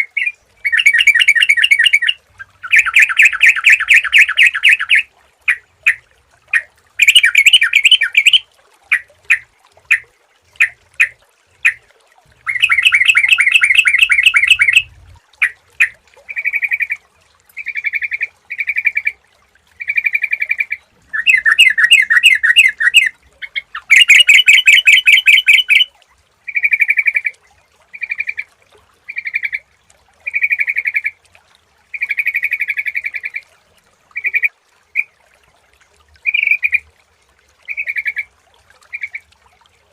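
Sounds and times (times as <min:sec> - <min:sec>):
bird calling: 0:00.0 - 0:10.0, 0:12.4 - 0:17.0, 0:19.8 - 0:25.9.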